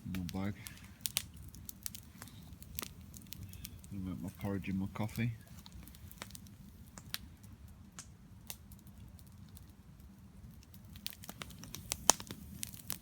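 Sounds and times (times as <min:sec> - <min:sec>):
wood campfire crackling: 0:00.0 - 0:13.0.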